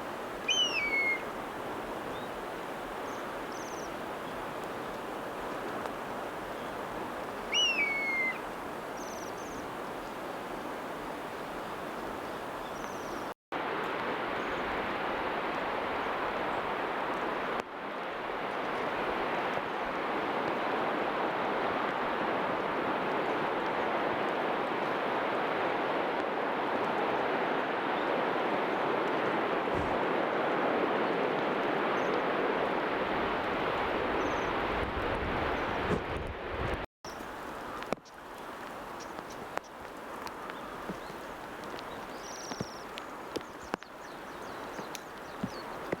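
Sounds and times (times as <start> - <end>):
outdoor background noise: 0.0 - 46.0
falling bird call: 0.4 - 1.4, 7.4 - 9.6
faint high chirps: 0.5 - 1.2.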